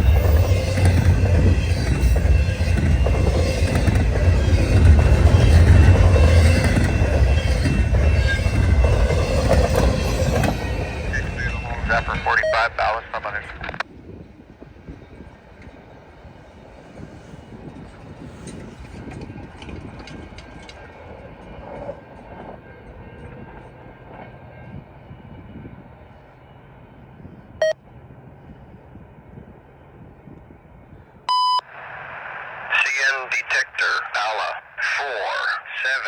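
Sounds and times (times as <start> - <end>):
train wheels rumbling on rails: 0.0 - 12.3, 13.9 - 31.2
loud radio alert tone: 11.0 - 13.8, 31.3 - 36.0
radio beep: 11.0 - 13.8, 31.3 - 36.0.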